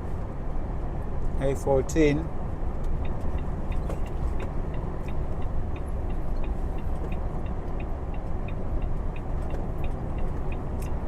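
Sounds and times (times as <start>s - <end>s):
truck engine rumble: 0.0s - 11.0s
light regular ticking: 2.6s - 11.0s.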